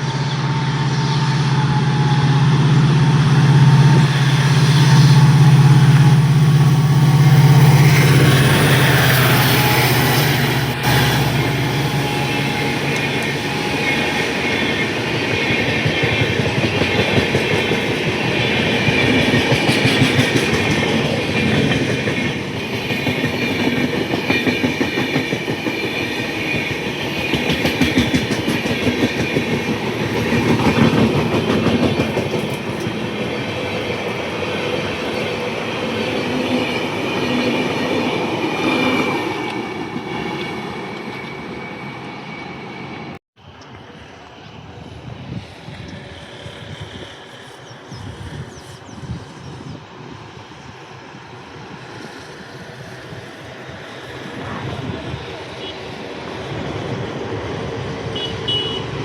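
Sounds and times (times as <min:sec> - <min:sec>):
train wheels clattering on rails: 0:01.7 - 0:40.3.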